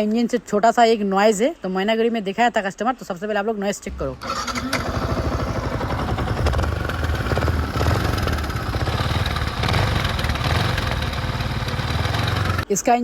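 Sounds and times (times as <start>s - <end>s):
motorcycle engine idling: 4.2s - 12.6s.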